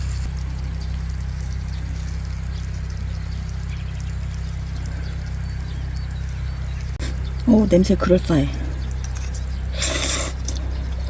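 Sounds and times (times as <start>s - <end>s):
raindrop ticks: 0.0s - 9.7s
steady rain falling: 0.0s - 11.0s.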